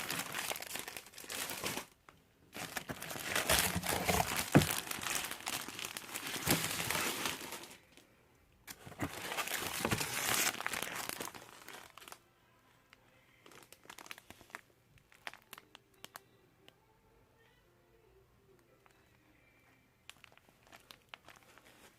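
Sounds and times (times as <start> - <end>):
packaging crinkling: 0.0 - 7.8, 8.7 - 12.2, 13.4 - 16.2, 20.1 - 21.9.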